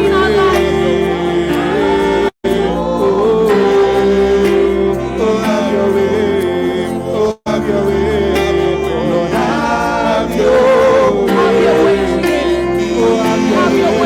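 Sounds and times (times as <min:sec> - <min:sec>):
bass: 0:00.0 - 0:14.0
singers holding wordless lines: 0:00.0 - 0:14.0
worship band playing: 0:00.0 - 0:14.0.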